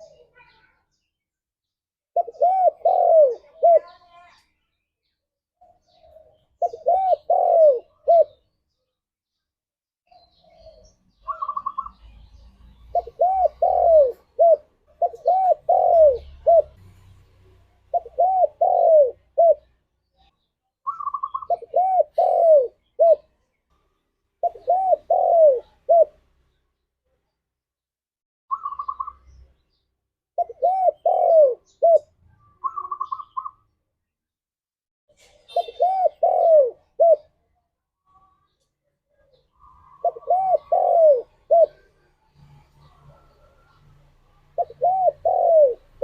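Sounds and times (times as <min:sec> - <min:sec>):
dove cooing: 0:02.2 - 0:04.1, 0:05.8 - 0:08.5, 0:10.4 - 0:16.8, 0:17.9 - 0:19.7, 0:20.9 - 0:23.3, 0:24.4 - 0:26.2, 0:28.5 - 0:29.2, 0:30.4 - 0:33.6, 0:35.5 - 0:37.3, 0:39.6 - 0:43.8, 0:44.4 - 0:46.0.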